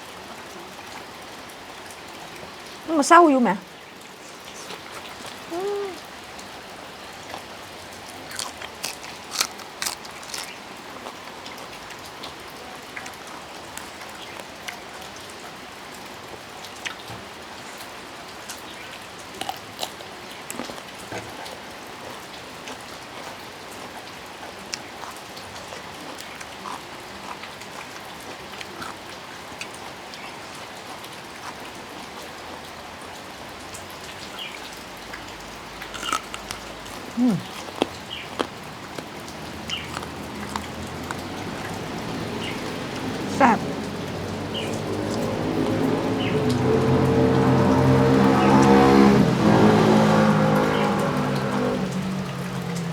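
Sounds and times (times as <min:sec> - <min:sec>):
steady rain falling: 0:00.0 - 0:52.9
sharp clicks or crunches: 0:08.3 - 0:10.6, 0:35.9 - 0:41.2.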